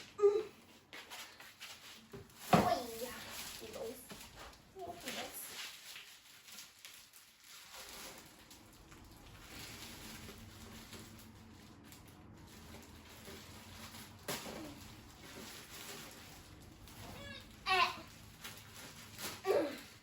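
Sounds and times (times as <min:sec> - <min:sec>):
packaging rustling: 0:01.0 - 0:20.0.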